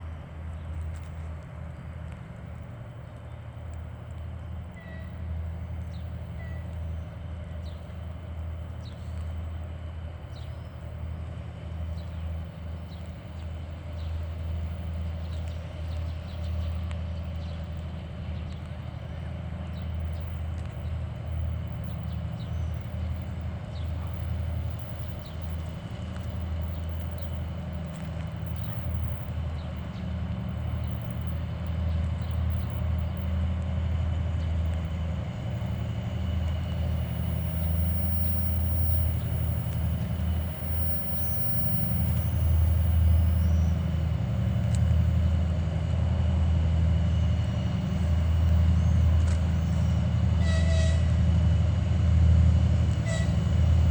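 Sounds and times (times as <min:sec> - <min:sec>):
diesel locomotive engine drone: 0:00.0 - 0:53.9
turbocharger whistle: 0:50.4 - 0:51.2, 0:52.9 - 0:53.5.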